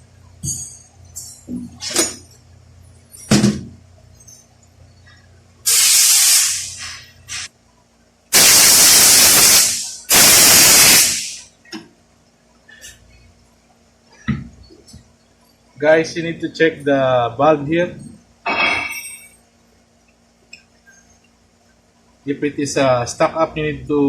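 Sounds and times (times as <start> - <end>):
pressurised spray hissing: 5.7 - 7.5, 8.4 - 11.5.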